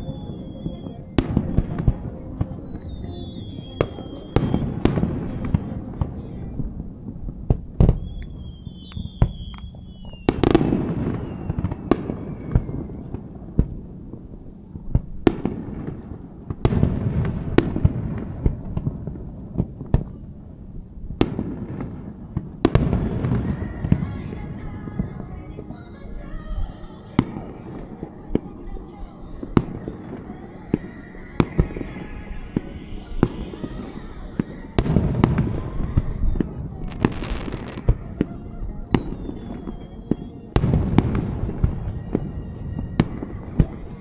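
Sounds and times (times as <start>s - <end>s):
high falling whistles: 0.0s - 6.8s, 7.8s - 13.2s, 28.8s - 44.0s
fireworks bursting: 0.0s - 44.0s
fireworks crackling: 0.0s - 44.0s.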